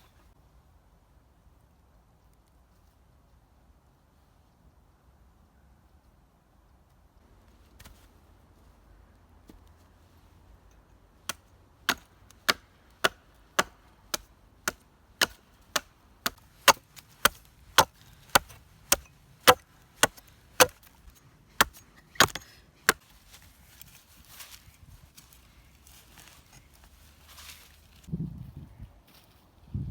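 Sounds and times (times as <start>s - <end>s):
wood being chopped: 11.3s - 23.0s.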